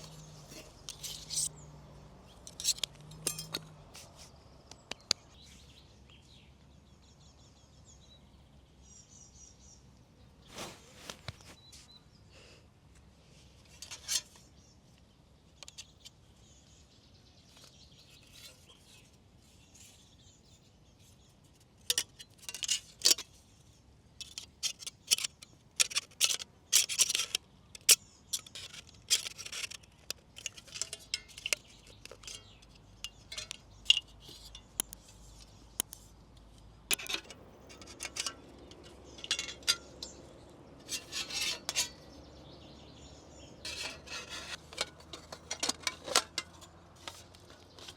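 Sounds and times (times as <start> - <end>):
small metal parts clinking: 0.0 - 1.5, 2.4 - 4.1, 24.2 - 36.1, 36.9 - 42.1, 43.6 - 47.9.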